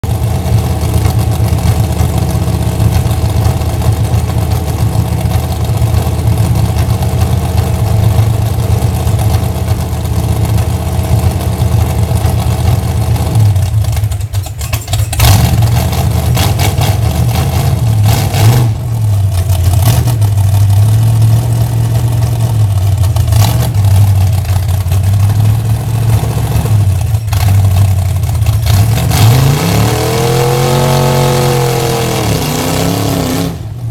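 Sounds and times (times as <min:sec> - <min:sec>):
car engine idling and revving: 0:00.0 - 0:33.9.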